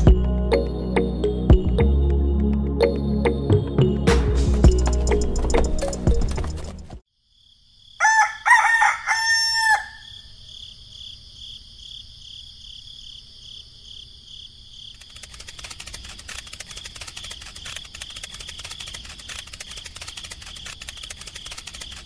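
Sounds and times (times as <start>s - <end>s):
rooster crowing: 8.0s - 10.3s
rapid dry clicking: 15.0s - 22.0s.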